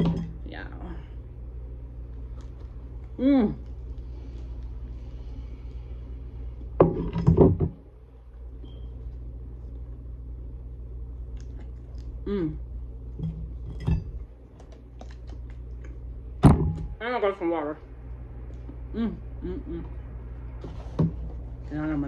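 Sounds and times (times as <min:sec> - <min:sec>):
closed-mouth hum: 0:00.0 - 0:22.0
steady low hum: 0:00.0 - 0:22.0
wet chewing clicks: 0:14.6 - 0:16.1.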